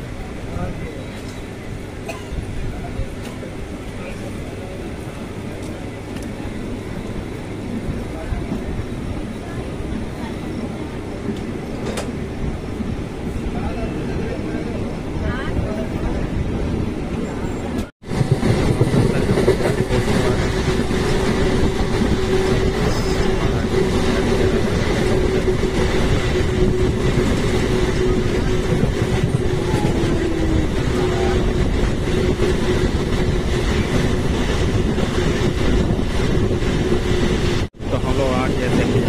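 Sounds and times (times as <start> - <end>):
train carriage rumble and rattle: 0.0 - 39.0.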